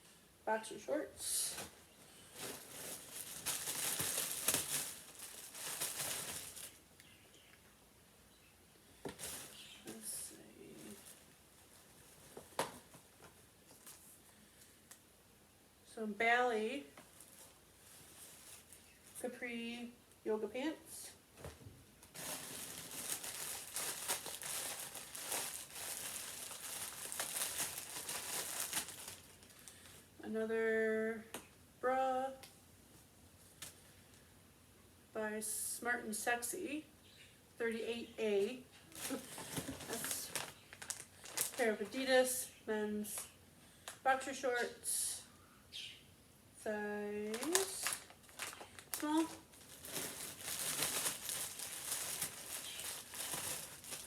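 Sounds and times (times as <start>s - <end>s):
packaging crinkling and rustling: 1.5s - 6.9s, 9.0s - 10.1s, 10.7s - 14.2s, 17.0s - 19.2s, 22.0s - 30.0s, 38.8s - 42.1s, 47.2s - 54.0s.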